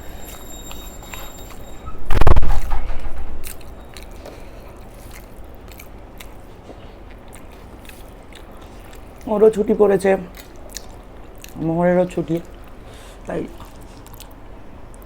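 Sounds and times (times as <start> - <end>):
chewing: 3.4 - 15.0.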